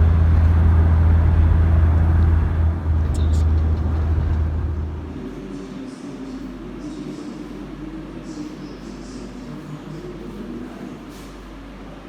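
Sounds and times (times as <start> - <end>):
vehicle rumble inside cabin: 0.0 - 5.4.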